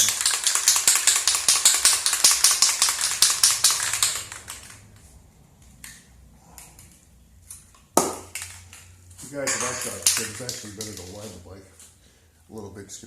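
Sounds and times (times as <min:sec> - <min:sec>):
aerosol can ball rattling: 0:00.0 - 0:05.0, 0:08.0 - 0:11.4.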